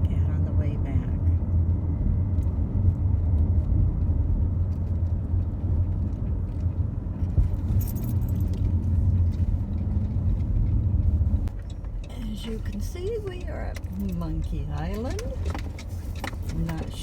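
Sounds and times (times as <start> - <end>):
road and engine rumble: 0.0 - 17.0
metallic jingle: 7.6 - 8.7.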